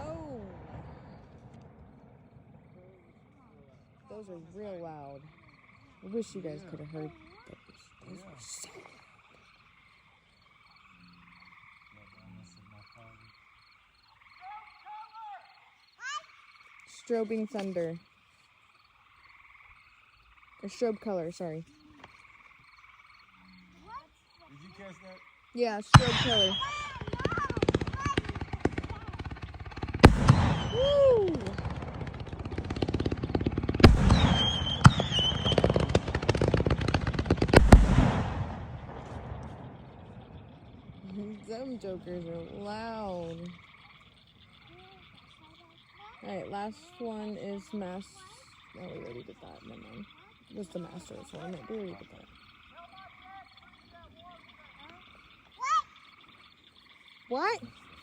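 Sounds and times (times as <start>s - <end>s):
loud firework bangs: 0.0s - 3.2s, 25.9s - 41.1s
strobe fireworks crackling: 0.0s - 8.6s, 25.8s - 46.4s
frogs calling in fast pulses: 2.2s - 58.0s.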